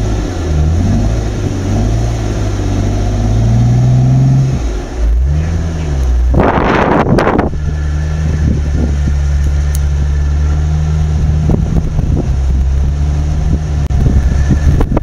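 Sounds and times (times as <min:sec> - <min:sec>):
off-road engine running: 0:00.0 - 0:15.0.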